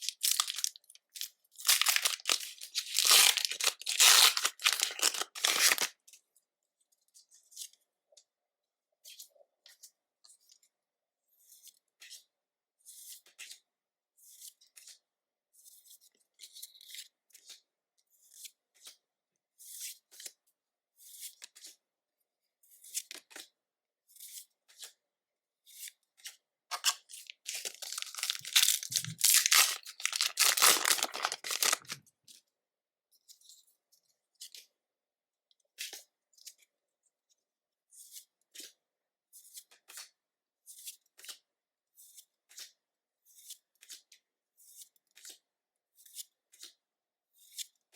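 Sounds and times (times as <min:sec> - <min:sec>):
foil wrapper tearing: 0:00.0 - 0:00.8, 0:01.6 - 0:05.9, 0:27.2 - 0:32.0
trading cards rustling and tapping: 0:01.7 - 0:05.9, 0:26.8 - 0:32.0.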